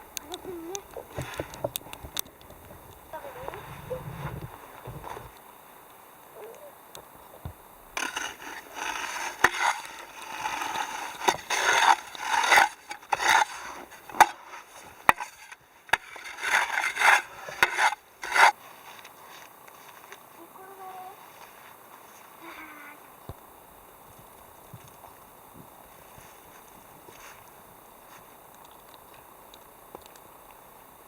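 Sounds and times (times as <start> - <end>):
scraping and rubbing strokes: 8.0 - 22.4.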